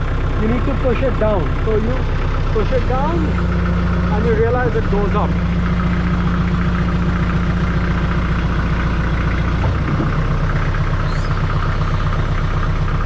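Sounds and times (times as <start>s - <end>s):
tractor diesel engine running: 0.0s - 13.0s
front loader hydraulics: 1.5s - 5.0s, 9.6s - 13.0s.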